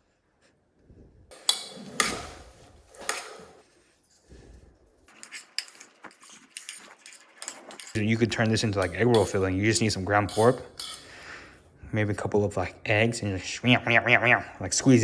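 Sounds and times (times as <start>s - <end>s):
kitchen utensils clattering: 1.3s - 3.7s, 5.1s - 11.5s.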